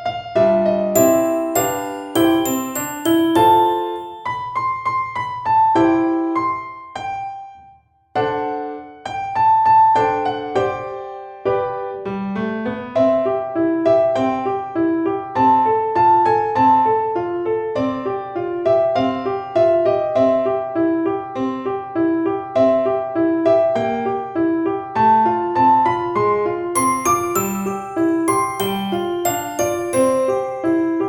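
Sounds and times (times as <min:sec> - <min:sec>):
piano-like keyboard melody: 0:00.0 - 0:31.0.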